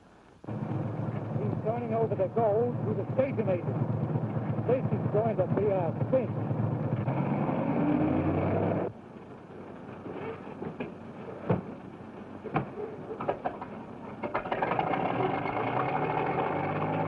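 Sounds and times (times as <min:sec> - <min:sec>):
car engine running: 0:00.4 - 0:09.3, 0:13.6 - 0:17.0.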